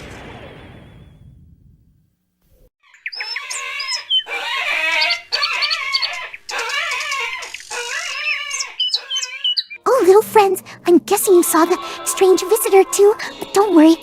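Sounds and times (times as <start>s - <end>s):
cartoon animals chirping and squawking: 2.8s - 14.0s.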